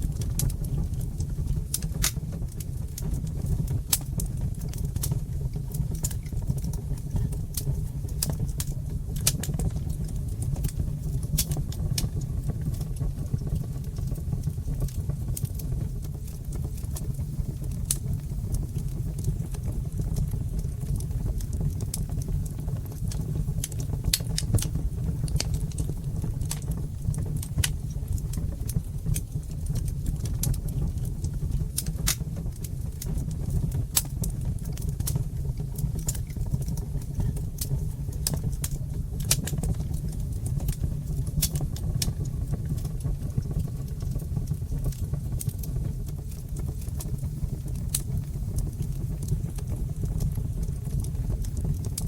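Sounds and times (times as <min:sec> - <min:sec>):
fire crackling and popping: 0:00.0 - 0:52.0.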